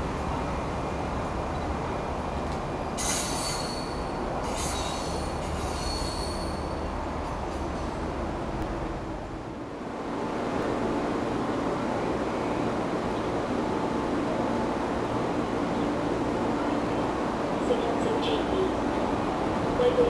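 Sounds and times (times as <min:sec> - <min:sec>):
train rumbling: 0:00.0 - 0:20.0
train wheels squealing on rails: 0:03.0 - 0:08.0.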